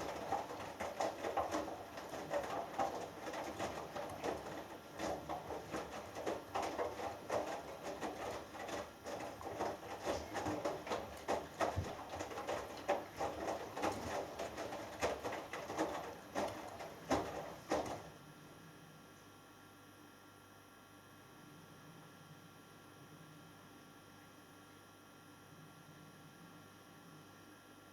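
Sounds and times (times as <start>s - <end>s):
knocks in washing machine drum: 0.0s - 18.1s
washing machine drum tumbling laundry: 0.0s - 18.2s.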